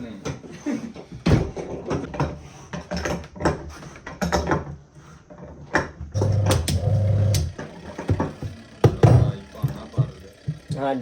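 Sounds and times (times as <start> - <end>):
parts and tools clattering: 0.0 - 11.0.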